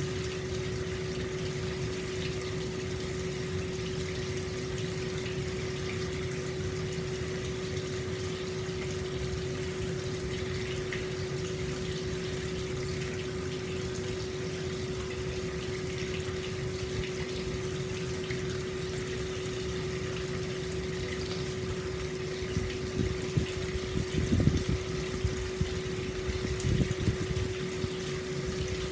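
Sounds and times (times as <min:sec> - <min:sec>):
hot spring water flowing: 0:00.0 - 0:28.9
steady hum: 0:00.0 - 0:28.9
low knocks and gurgles: 0:22.6 - 0:27.5.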